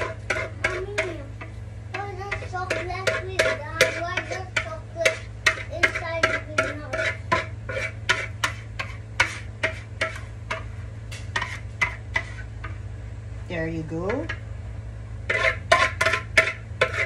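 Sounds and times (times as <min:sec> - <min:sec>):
utensil scraping a strainer: 0:00.0 - 0:12.8, 0:15.2 - 0:17.0
steady low hum: 0:00.0 - 0:17.0.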